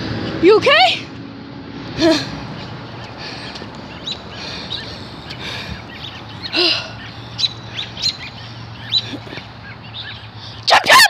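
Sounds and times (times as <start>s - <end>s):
small bird chirping: 2.1s - 10.7s.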